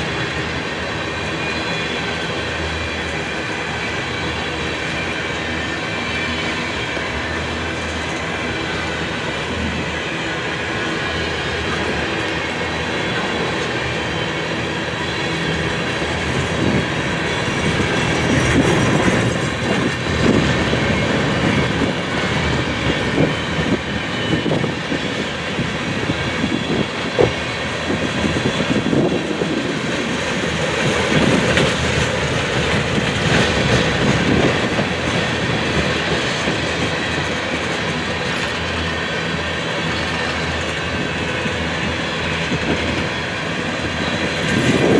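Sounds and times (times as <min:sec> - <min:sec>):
train wheels clacking over rail joints: 0:10.8 - 0:44.9.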